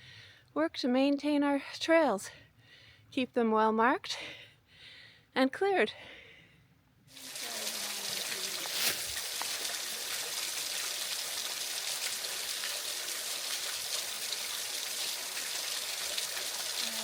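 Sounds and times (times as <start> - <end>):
stream water flowing: 7.2 - 17.0.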